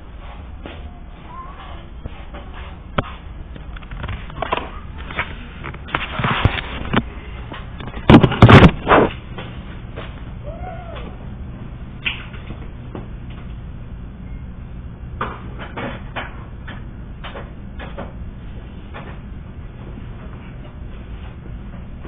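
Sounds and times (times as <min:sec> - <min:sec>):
knocks and thumps: 0:07.8 - 0:09.2.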